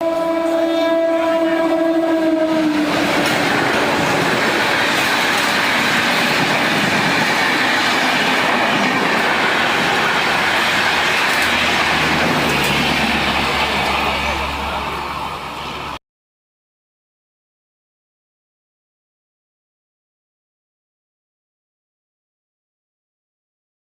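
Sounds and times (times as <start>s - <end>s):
train horn: 0.0s - 5.0s
fast train passing: 0.0s - 16.0s.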